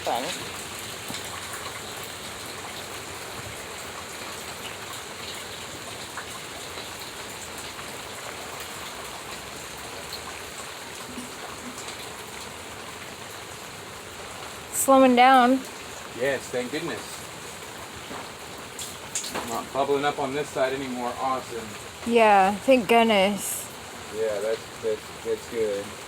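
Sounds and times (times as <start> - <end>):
heavy rain falling: 0.0 - 26.0
sharp drip ticks: 17.8 - 20.8.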